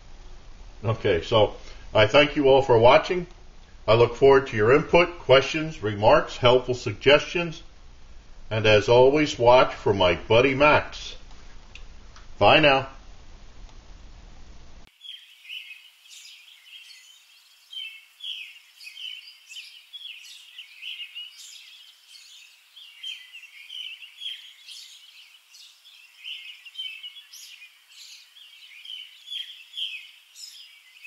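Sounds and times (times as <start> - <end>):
birds chirping and trilling: 14.9 - 31.0.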